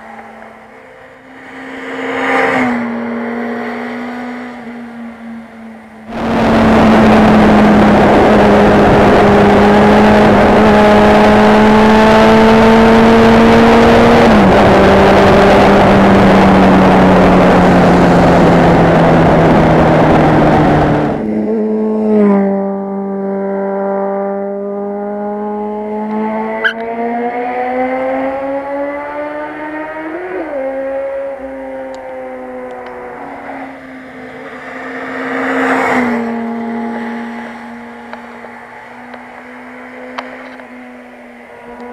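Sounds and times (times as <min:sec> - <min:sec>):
motorcycle engine: 0:00.0 - 0:41.9
wind rush on microphone: 0:06.1 - 0:11.1, 0:12.9 - 0:21.4.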